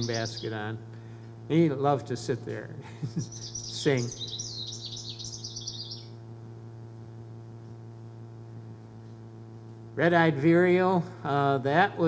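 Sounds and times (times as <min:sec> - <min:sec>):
bird song over loudspeaker: 0:00.0 - 0:00.8, 0:03.3 - 0:06.1
steady electrical hum: 0:00.0 - 0:12.0.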